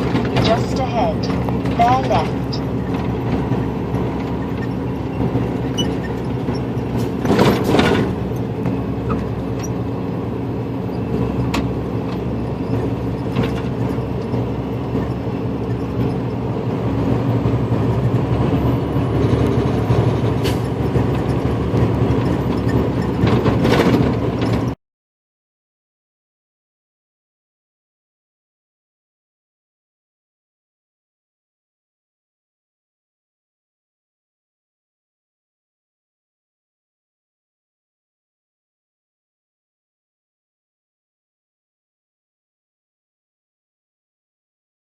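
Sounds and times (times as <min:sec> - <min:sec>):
sharp knocks and rattles: 0:00.0 - 0:09.8, 0:11.0 - 0:24.8
road noise: 0:00.0 - 0:24.8
truck engine running: 0:00.0 - 0:24.8.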